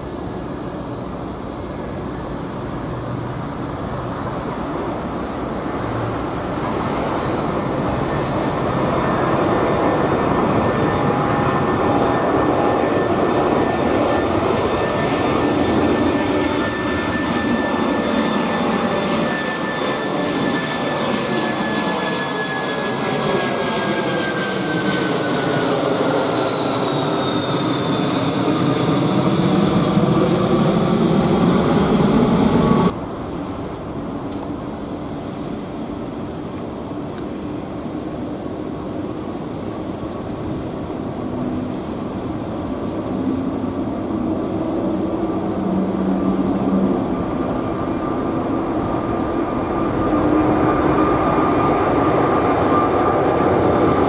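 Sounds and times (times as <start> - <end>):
jet engines roaring with whine: 0.0 - 54.0
steady low rumble: 30.0 - 52.6.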